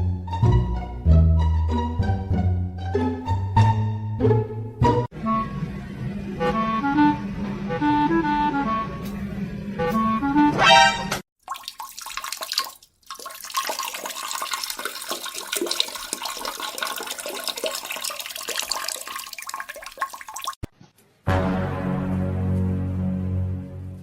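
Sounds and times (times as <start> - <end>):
music: 0.0 - 11.2, 21.1 - 24.0
water rushing and splashing: 11.5 - 20.6.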